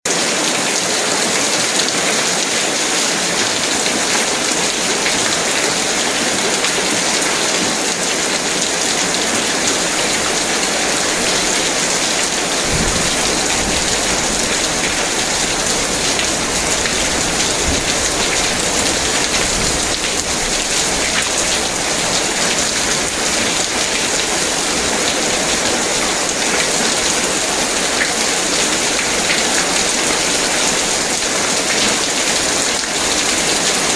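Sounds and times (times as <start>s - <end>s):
heavy rain falling: 0.0s - 33.9s.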